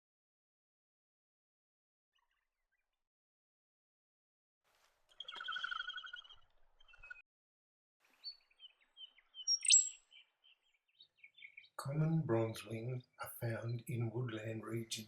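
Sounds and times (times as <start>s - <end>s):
bird pulsing trill: 5.2s - 7.2s, 8.6s - 10.6s
high bird chirps: 5.2s - 7.2s, 8.2s - 11.8s.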